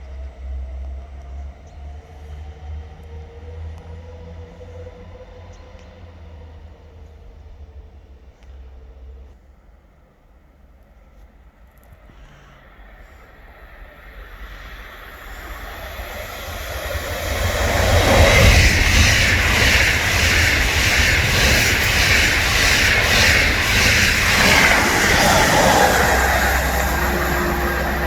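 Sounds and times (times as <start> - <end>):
train passing: 11.4 - 28.0.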